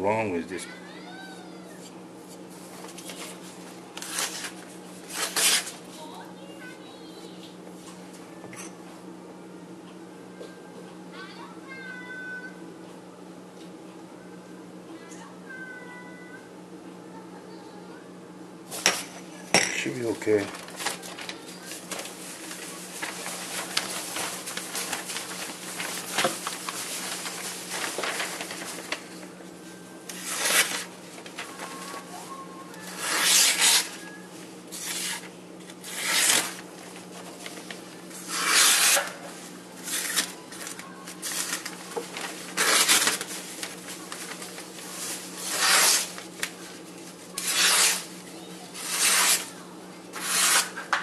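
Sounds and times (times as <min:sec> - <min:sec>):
knife blade scraping on abrasive: 0:33.0 - 0:34.0, 0:35.8 - 0:36.5, 0:38.3 - 0:39.2, 0:45.4 - 0:46.1, 0:47.4 - 0:48.1, 0:48.8 - 0:49.5, 0:50.2 - 0:50.8.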